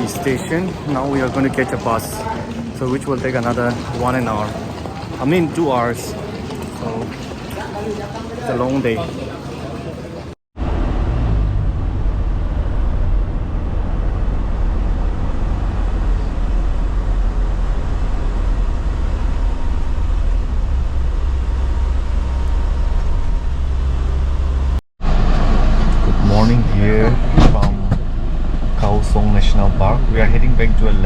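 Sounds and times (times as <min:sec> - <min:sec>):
bus engine and road rumble: 0:00.0 - 0:31.0.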